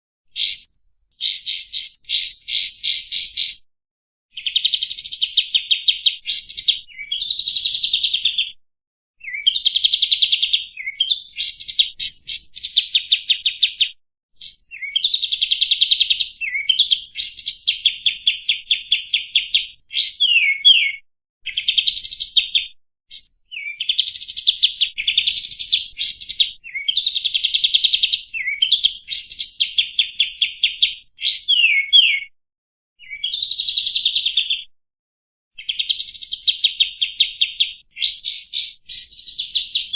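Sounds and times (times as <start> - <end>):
bulbul singing chattering trills: 0.3 - 3.6, 4.4 - 8.4, 9.2 - 13.8.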